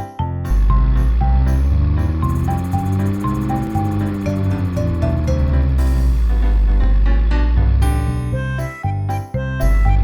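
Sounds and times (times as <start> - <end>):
upbeat children's music: 7.8 - 10.0.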